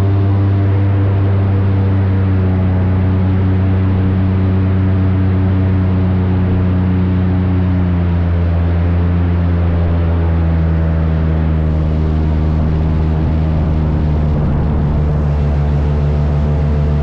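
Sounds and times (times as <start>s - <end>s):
airboat engine and propeller drone: 0.0s - 17.0s
air and water wash: 11.4s - 17.0s.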